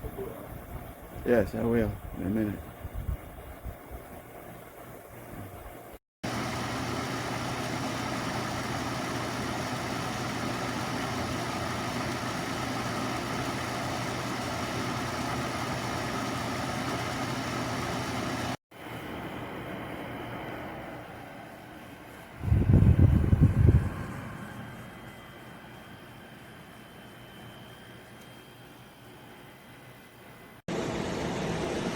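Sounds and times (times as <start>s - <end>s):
air conditioner fan rushing: 0.0s - 31.9s
low compressor hum: 22.1s - 28.0s.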